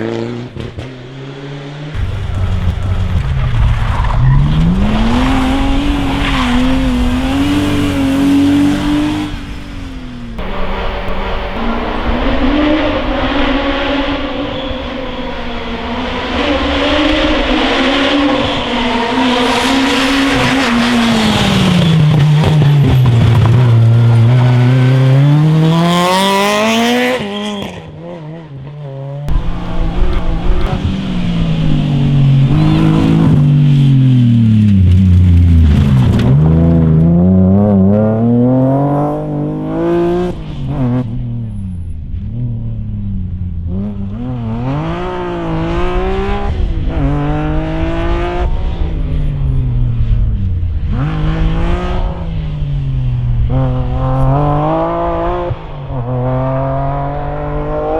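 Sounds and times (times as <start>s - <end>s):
rally car engines revving: 0.0s - 28.7s, 29.3s - 57.9s
engine revving sharply: 2.0s - 9.8s, 10.4s - 27.1s, 29.3s - 34.7s.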